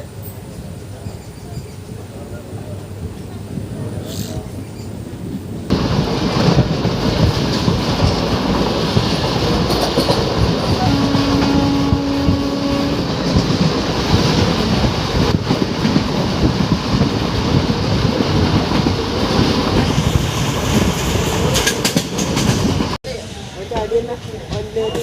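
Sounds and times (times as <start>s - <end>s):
train rumbling on track: 0.0s - 25.0s
wheels clattering over rails: 5.7s - 12.4s
held tone: 10.8s - 13.1s.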